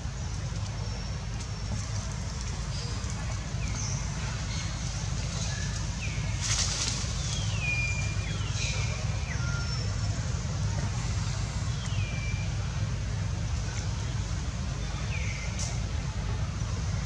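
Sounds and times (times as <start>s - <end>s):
birds whistling: 7.2s - 10.2s.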